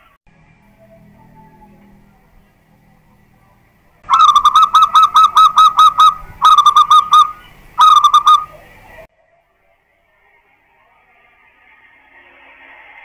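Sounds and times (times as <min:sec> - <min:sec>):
dove singing repeated notes: 0:04.0 - 0:09.1.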